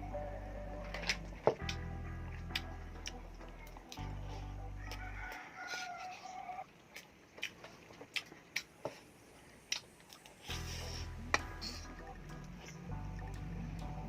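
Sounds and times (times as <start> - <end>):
rooster crowing: 4.8 - 6.7.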